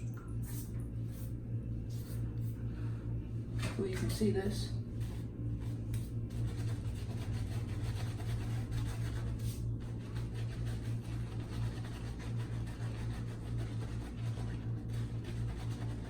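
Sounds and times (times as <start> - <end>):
steady low hum: 0.0 - 16.0
shaving brush scrubbing lather: 5.0 - 16.0.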